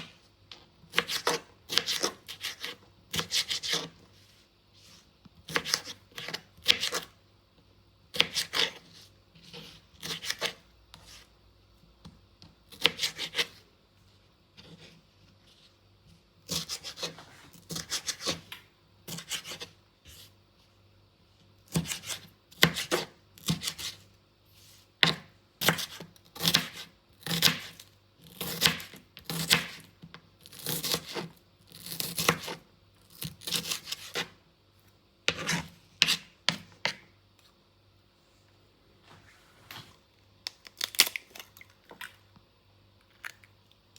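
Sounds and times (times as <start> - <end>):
food scraping and cutting strokes: 0.9 - 7.2, 8.2 - 11.4, 12.7 - 13.7, 16.4 - 18.5, 19.1 - 20.4, 25.6 - 34.4, 35.3 - 37.0.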